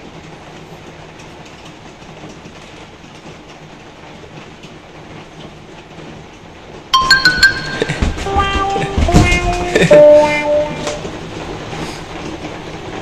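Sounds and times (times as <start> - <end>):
heavy rain on canopy: 0.0 - 13.0
music with stepping notes: 7.0 - 11.1.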